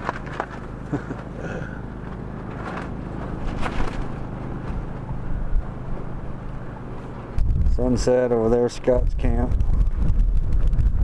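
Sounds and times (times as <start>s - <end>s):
generator low hum: 0.0s - 11.0s
wind buffeting microphone: 7.2s - 11.0s.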